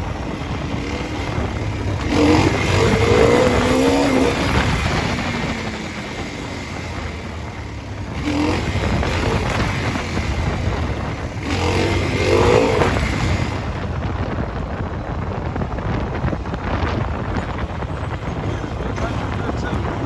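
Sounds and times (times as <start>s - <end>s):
dirt bike engine revving: 0.0s - 14.4s
wind on microphone: 0.0s - 20.0s.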